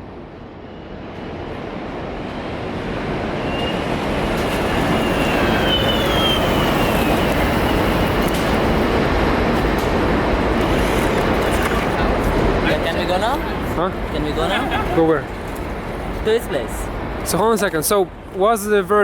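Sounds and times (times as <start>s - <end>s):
skateboard wheels rumbling on pavement: 3.1s - 16.4s.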